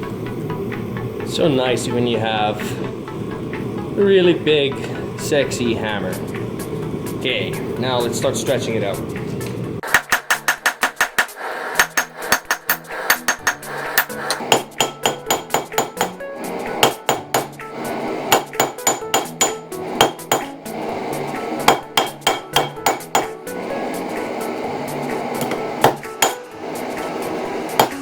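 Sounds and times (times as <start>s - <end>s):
hammer striking steel on an anvil: 9.8s - 23.6s, 24.9s - 26.6s, 27.6s - 28.0s.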